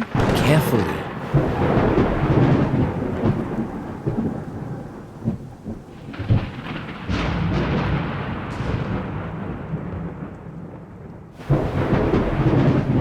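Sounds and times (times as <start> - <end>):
sharp thunder cracks: 0.0 - 13.0
thunder rumbling: 0.0 - 13.0.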